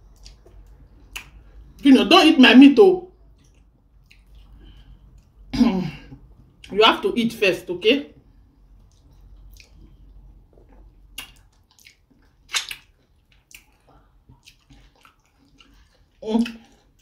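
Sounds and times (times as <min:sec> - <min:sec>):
wet chewing and lip smacks: 0:00.0 - 0:01.8, 0:03.2 - 0:05.5, 0:08.6 - 0:17.0
soup squishing: 0:08.6 - 0:17.0.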